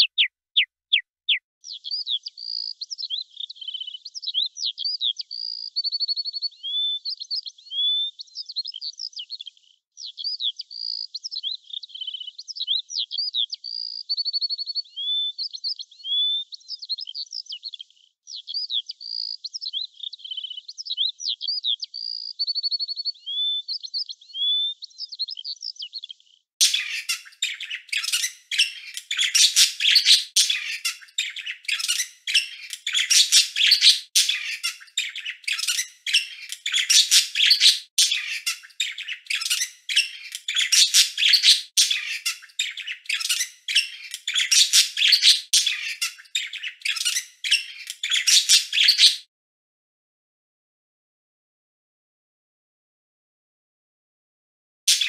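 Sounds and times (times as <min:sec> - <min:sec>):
rapid chirping and squawking: 0:00.0 - 0:01.4, 0:26.6 - 0:49.3
bird singing whistled phrases: 0:00.0 - 0:08.8, 0:10.0 - 0:17.6, 0:18.3 - 0:25.5, 0:26.6 - 0:49.3.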